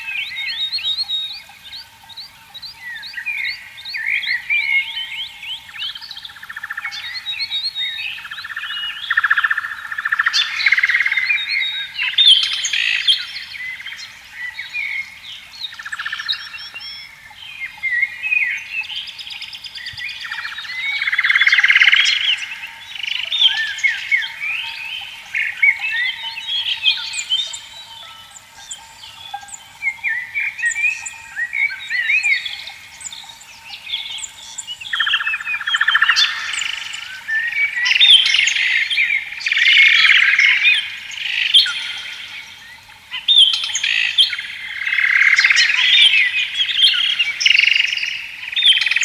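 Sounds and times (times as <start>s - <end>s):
birds chirping: 0.0s - 49.0s.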